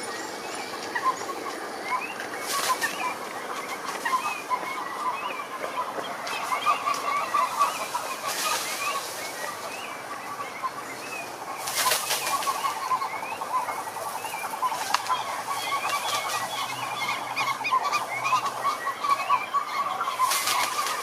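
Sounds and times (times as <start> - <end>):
frogs calling: 0.0 - 21.0.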